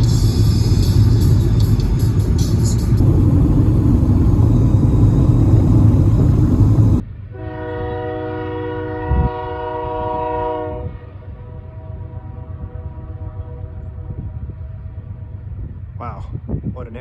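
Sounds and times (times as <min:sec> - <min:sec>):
loud deep rumble: 0:00.0 - 0:07.5
train horn chord: 0:00.0 - 0:15.2.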